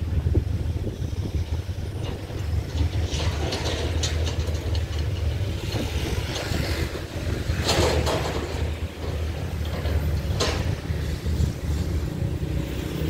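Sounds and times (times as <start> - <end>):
train wheels rumbling on rail: 0.0 - 13.0
light clicks and rattles: 2.0 - 6.6.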